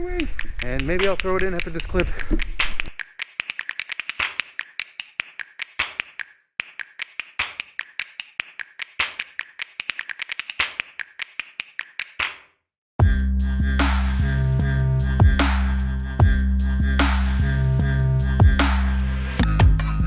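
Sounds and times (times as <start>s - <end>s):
rapid sharp clicks: 0.1s - 12.3s.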